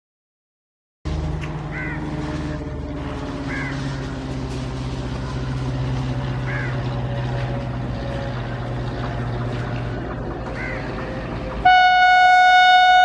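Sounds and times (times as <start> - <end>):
electric locomotive hum: 1.1 - 13.0
bird calls: 6.2 - 11.4.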